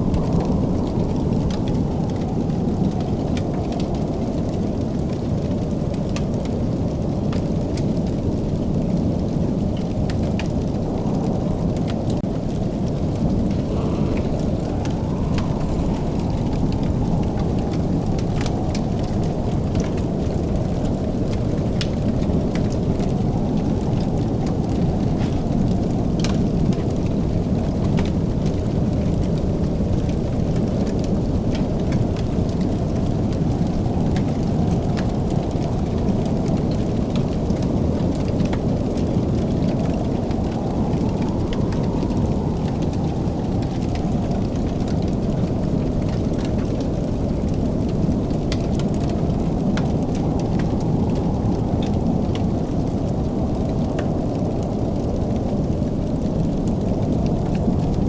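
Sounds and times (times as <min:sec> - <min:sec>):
fire crackling and popping: 0:00.0 - 0:58.0
wood fire roaring: 0:00.0 - 0:58.0.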